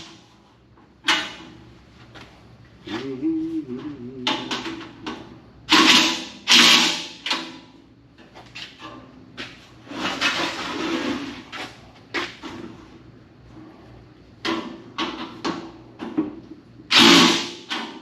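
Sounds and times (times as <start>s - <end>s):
scraping and rustling of parts: 8.2s - 13.0s.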